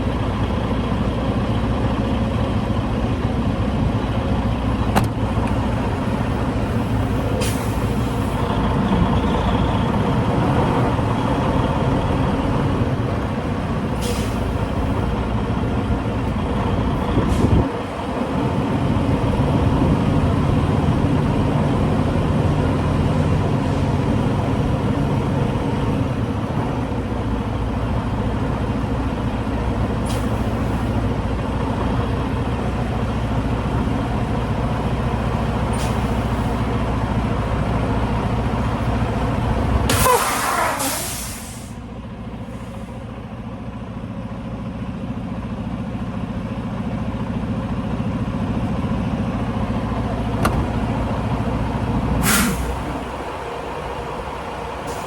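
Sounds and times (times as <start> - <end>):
diesel truck engine running: 0.0 - 55.0
air brake hisses: 7.3 - 8.3, 14.0 - 14.6, 30.0 - 30.8, 35.7 - 36.4, 39.9 - 41.8, 52.2 - 52.9.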